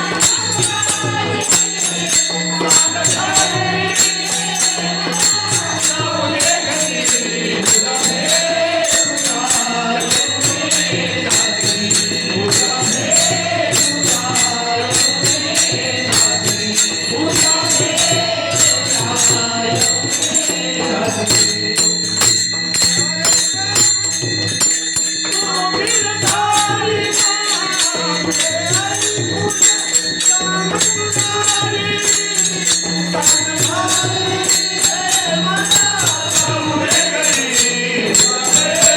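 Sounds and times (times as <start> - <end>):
devotional singing: 0.0 - 38.9
repeating percussion beats: 0.0 - 38.9.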